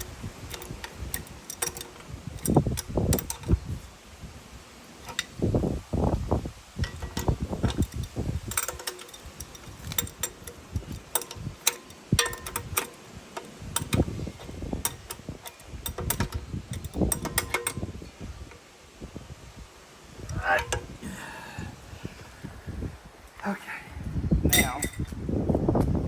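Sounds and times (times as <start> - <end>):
hand tools clicking and knocking: 0.0 - 3.6, 5.0 - 5.4, 6.8 - 17.9, 24.5 - 25.1.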